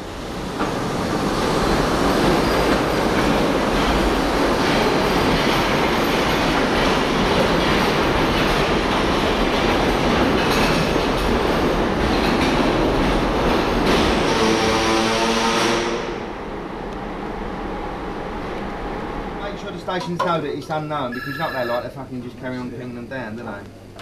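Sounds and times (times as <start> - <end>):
train wheels running on rail: 0.0 - 14.9.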